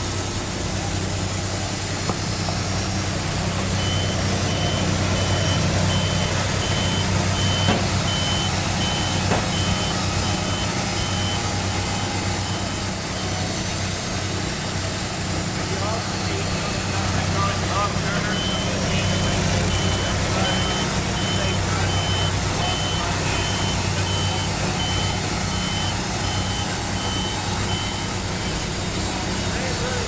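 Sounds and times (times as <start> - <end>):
engines running: 0.0 - 30.0
reversing alarm beeping: 3.6 - 13.6, 16.0 - 28.9.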